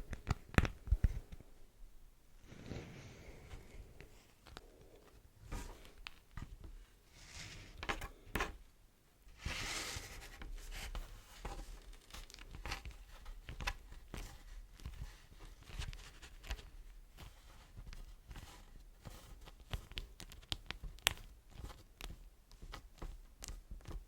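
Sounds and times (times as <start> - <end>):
wax wrap crinkling and peeling: 9.4 - 18.4.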